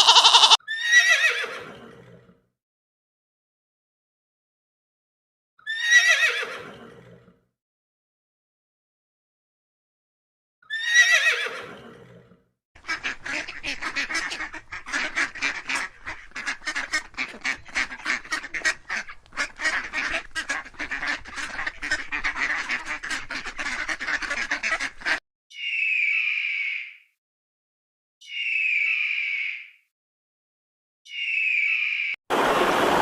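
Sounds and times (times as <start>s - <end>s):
ducks quacking: 0.0s - 0.6s, 12.8s - 25.2s
horse whinny: 0.0s - 2.3s, 5.7s - 7.4s, 10.7s - 12.4s.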